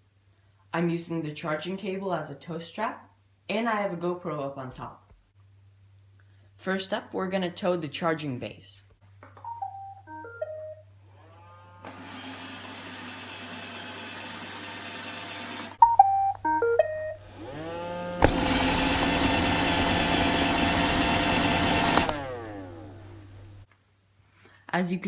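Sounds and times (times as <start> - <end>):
electronic beep melody: 9.4 - 10.8, 15.8 - 17.2
robot vacuum motor hum: 11.1 - 15.8, 17.2 - 23.6
vacuum motors spinning: 11.1 - 15.8, 17.2 - 23.6.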